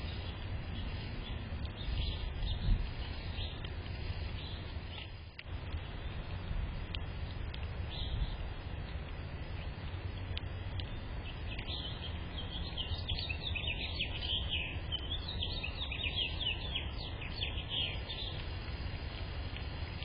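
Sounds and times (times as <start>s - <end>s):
low background rumble: 0.0s - 20.0s
songbird chattering high chirps: 11.2s - 18.4s.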